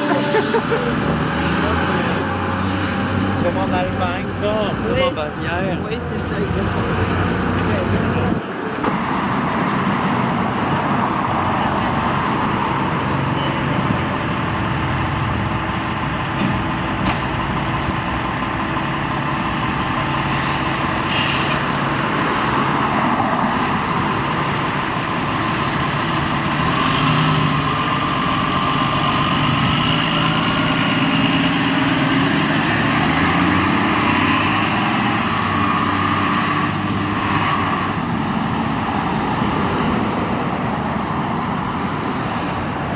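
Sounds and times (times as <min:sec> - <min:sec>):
diesel engine accelerating: 0:00.0 - 0:42.9
air brake hiss: 0:20.4 - 0:21.8.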